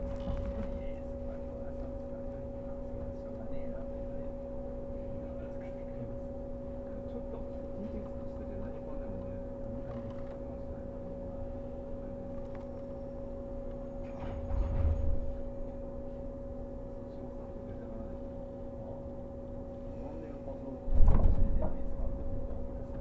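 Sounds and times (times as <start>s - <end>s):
constant equipment tones: 0.0s - 23.0s
electric train interior hum: 0.0s - 23.0s
low rumble: 13.7s - 15.8s.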